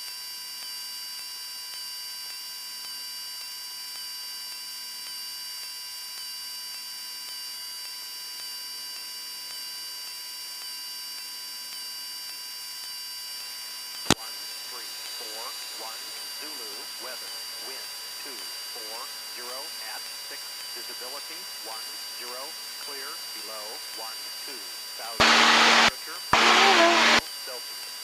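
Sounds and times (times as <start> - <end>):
airplane engine drone: 14.1 - 27.2.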